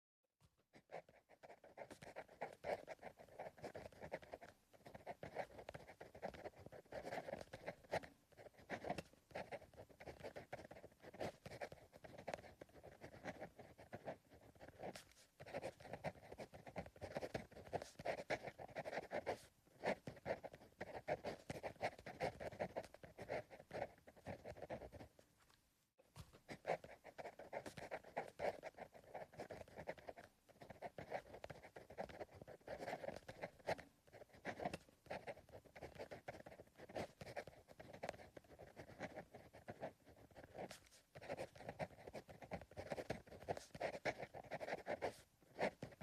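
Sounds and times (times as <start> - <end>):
pencil scratching on paper: 0.8 - 25.2, 26.2 - 46.0.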